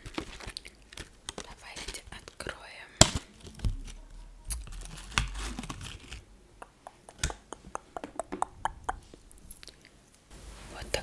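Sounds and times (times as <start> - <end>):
package rustling: 0.0 - 6.3.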